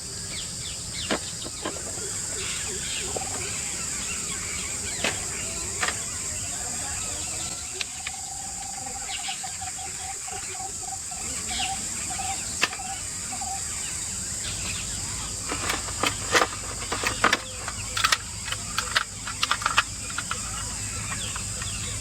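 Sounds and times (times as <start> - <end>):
insect drone: 0.0 - 22.0
sharp clicks and knocks: 15.4 - 21.8.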